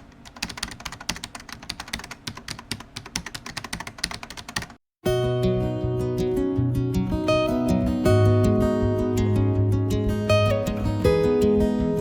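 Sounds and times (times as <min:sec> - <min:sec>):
keyboard typing: 0:00.0 - 0:04.8
acoustic guitar music: 0:05.0 - 0:12.0.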